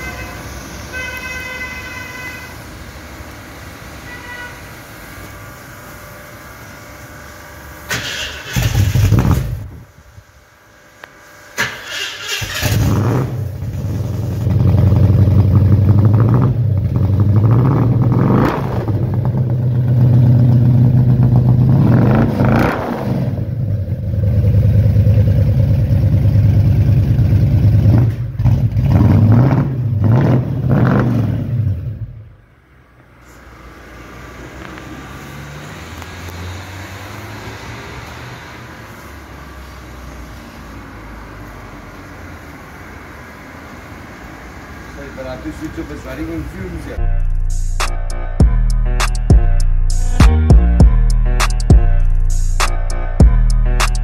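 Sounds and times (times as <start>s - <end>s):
loud engine burst: 7.9s - 9.8s, 11.5s - 16.6s
car engine revving: 11.6s - 32.3s, 33.5s - 44.9s.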